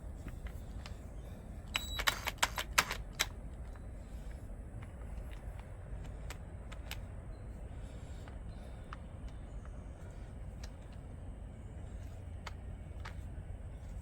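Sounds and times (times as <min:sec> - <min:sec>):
drill chuck clicking and rattling: 0:01.7 - 0:03.4.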